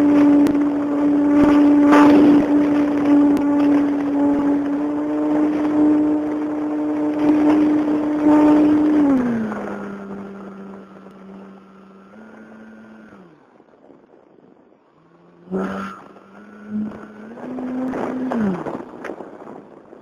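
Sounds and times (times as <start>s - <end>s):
model airplane motor and propeller: 0.0s - 20.0s.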